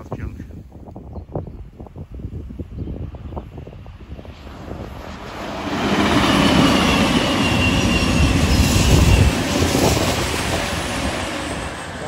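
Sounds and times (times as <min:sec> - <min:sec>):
train passing at speed: 0:03.0 - 0:12.0.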